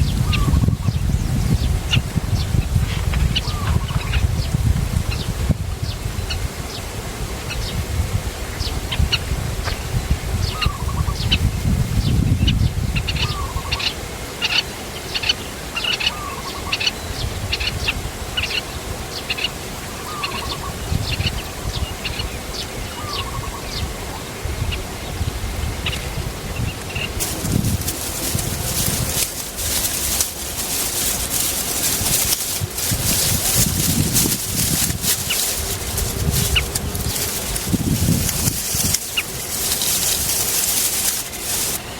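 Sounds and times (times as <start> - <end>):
birds chirping: 26.9 - 41.9.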